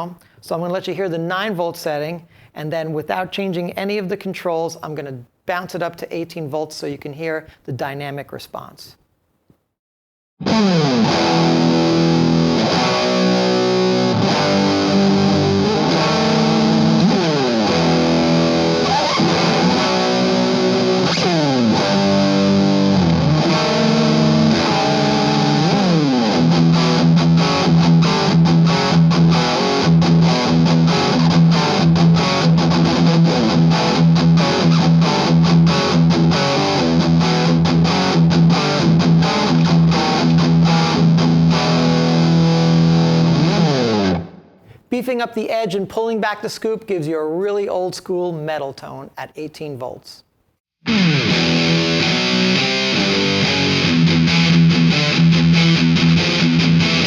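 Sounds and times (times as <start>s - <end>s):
distorted electric guitar riffs: 10.4s - 44.7s, 50.8s - 57.0s.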